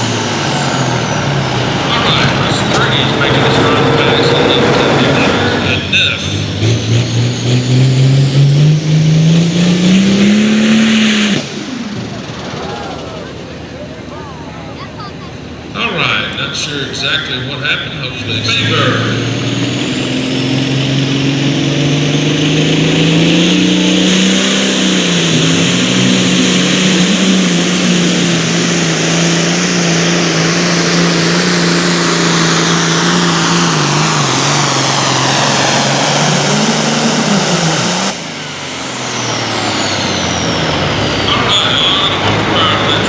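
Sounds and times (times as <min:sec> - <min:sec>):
tractor engine under load: 0:00.0 - 0:43.0.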